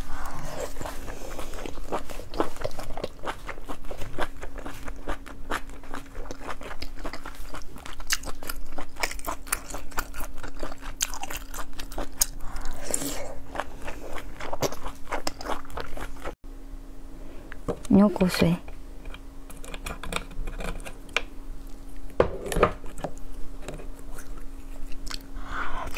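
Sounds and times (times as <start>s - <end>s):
faint steady hum: 0.0s - 25.9s
person chewing and crunching: 0.1s - 16.4s, 22.8s - 25.9s.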